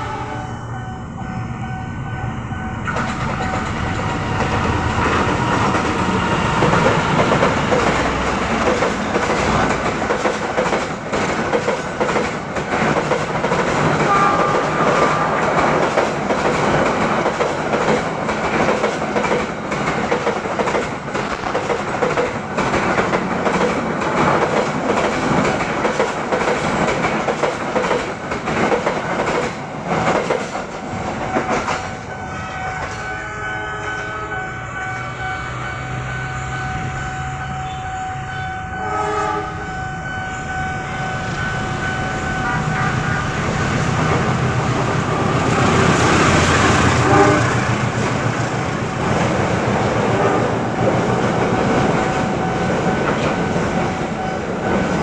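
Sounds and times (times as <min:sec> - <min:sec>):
train passing: 0:00.0 - 0:55.0
wheels clacking over rail joints: 0:02.9 - 0:32.0.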